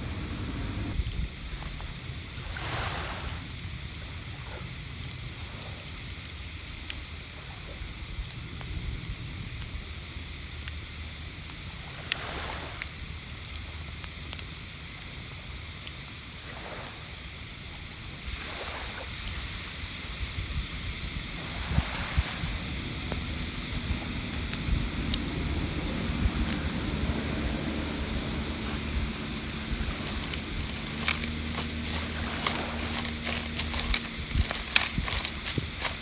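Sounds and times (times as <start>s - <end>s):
wind on microphone: 0.0s - 4.3s, 18.4s - 36.0s
waves washing on shore: 0.0s - 4.6s, 11.6s - 13.6s, 16.3s - 36.0s.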